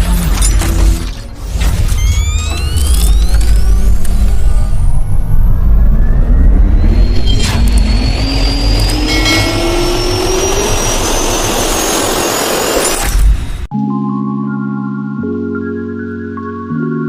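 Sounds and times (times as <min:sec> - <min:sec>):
jet engines spooling up: 0:02.0 - 0:13.7.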